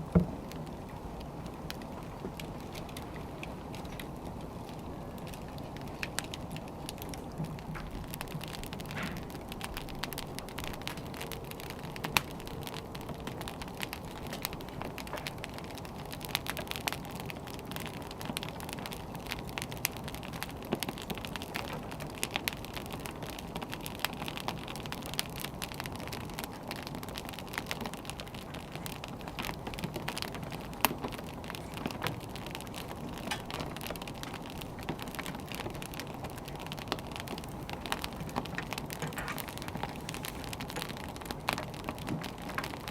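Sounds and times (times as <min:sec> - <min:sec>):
firewood crackling and popping: 0:00.0 - 0:42.9.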